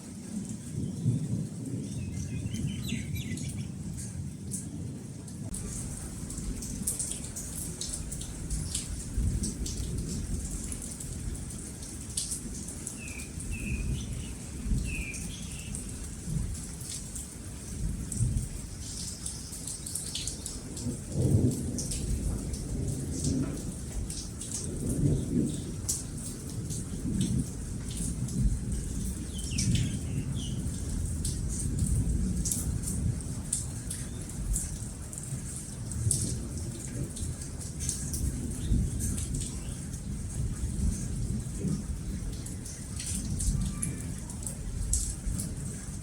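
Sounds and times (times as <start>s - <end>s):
rain falling: 0.0s - 46.0s
low rolling thunder: 0.2s - 46.0s
bird chirping: 1.9s - 3.7s, 13.0s - 15.9s.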